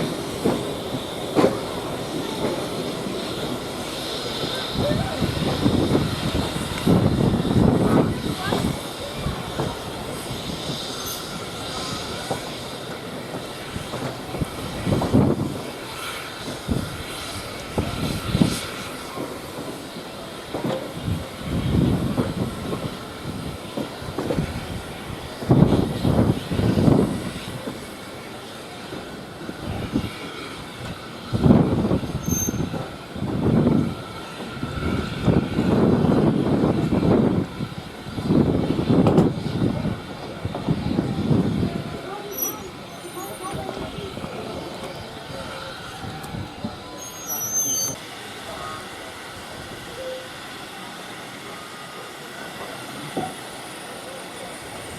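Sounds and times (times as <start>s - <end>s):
heavy train thumps: 0.0s - 10.8s, 38.2s - 41.8s
steam locomotive exhaust puffing: 0.0s - 54.9s
train rumbling: 0.0s - 54.9s.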